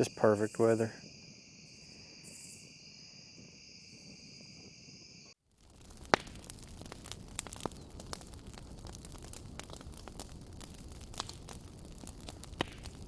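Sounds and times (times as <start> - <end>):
crickets trilling: 0.0 - 5.4
campfire crackling and popping: 5.4 - 13.0.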